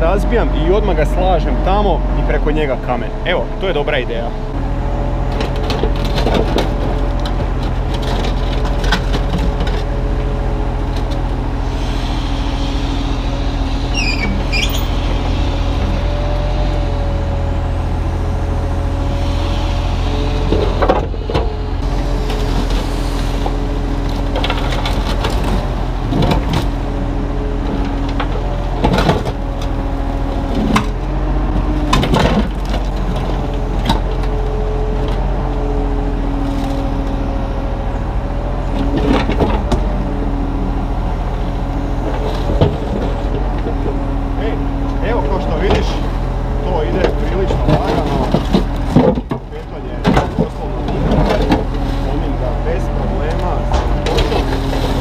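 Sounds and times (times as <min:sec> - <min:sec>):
excavator diesel engine running: 0:00.0 - 0:55.0
hydraulics whining: 0:00.0 - 0:55.0
brief squeal: 0:13.8 - 0:15.8.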